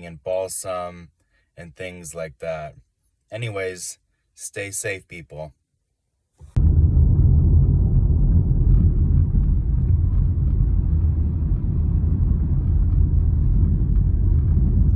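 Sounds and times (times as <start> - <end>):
loud low rumble: 6.6 - 14.9.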